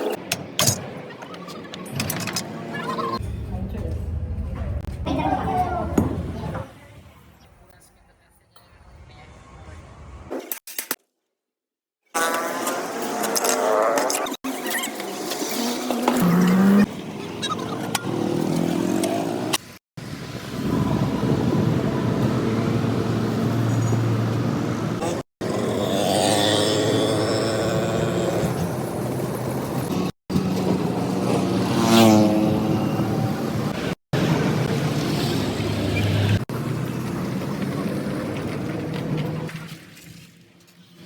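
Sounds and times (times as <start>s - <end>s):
engine revving: 15.7s - 17.0s, 20.6s - 38.4s
vehicle engines running: 16.2s - 26.3s, 27.4s - 39.7s.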